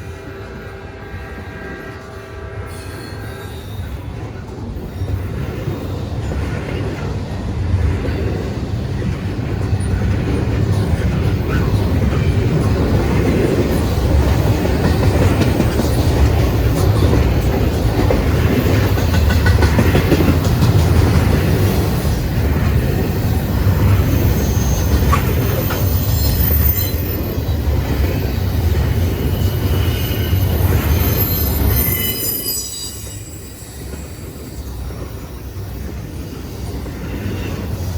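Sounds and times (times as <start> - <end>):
freight train wheels rumbling: 0.0 - 37.9
wheel squeal: 23.6 - 36.1.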